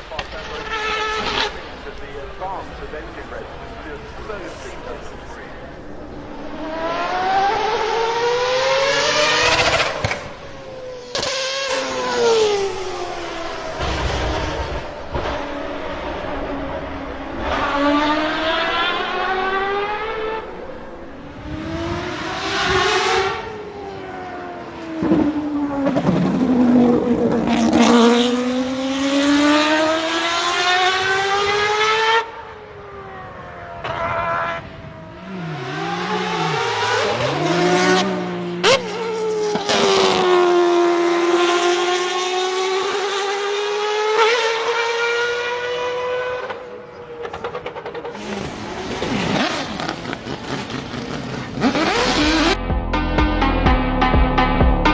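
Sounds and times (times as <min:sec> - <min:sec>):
high-pitched racing engine: 0:00.0 - 0:54.9.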